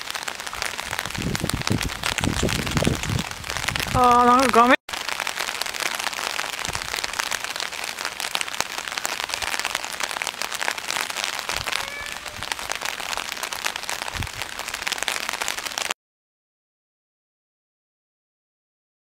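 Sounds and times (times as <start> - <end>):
rain falling: 0.0 - 16.0
dull low bumps: 0.6 - 4.0.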